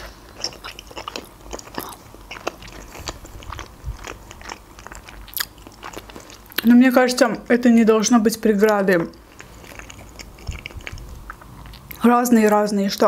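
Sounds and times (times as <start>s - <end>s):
chewing mouth clicks: 0.4s - 6.7s, 9.1s - 12.0s.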